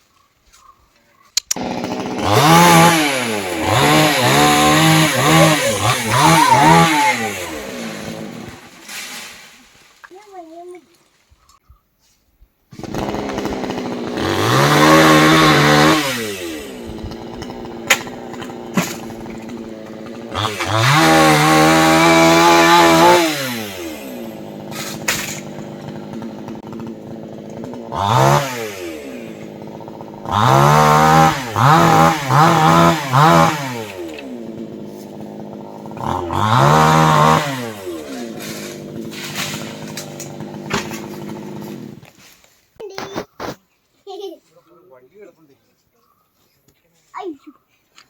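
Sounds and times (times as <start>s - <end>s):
chainsaw idling and revving: 1.5s - 8.8s, 12.7s - 42.2s.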